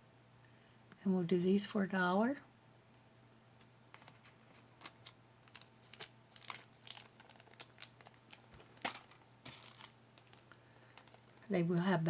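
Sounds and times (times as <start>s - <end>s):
low steady hum: 0.0s - 12.0s
jewelry clicking and crinkling: 3.6s - 11.5s.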